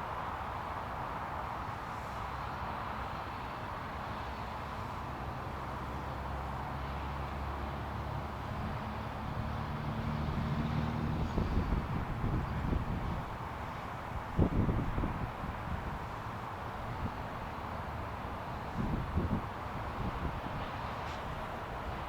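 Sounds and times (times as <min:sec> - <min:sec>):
traffic noise: 0:00.0 - 0:22.0
vehicle engine hum: 0:01.8 - 0:22.0
wind buffeting microphone: 0:10.3 - 0:16.2, 0:18.6 - 0:20.7.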